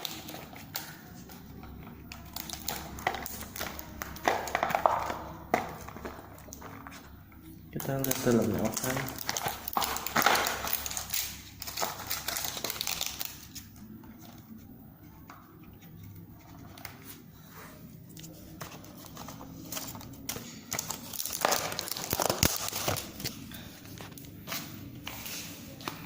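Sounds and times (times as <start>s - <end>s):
packaging crinkling and rustling: 0.0s - 14.8s, 15.7s - 26.0s.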